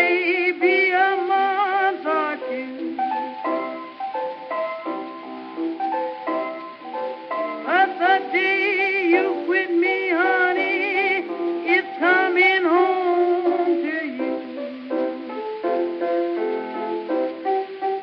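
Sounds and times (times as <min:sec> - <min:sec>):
woman singing with vibrato: 0:00.0 - 0:02.9, 0:07.6 - 0:14.5
instrumental accompaniment: 0:00.0 - 0:18.0.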